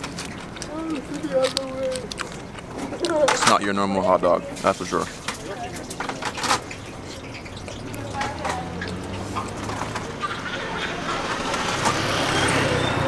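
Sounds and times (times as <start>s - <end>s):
wet chewing mouth sounds: 0.0s - 3.3s, 4.0s - 10.1s
faint background voices: 0.6s - 11.8s.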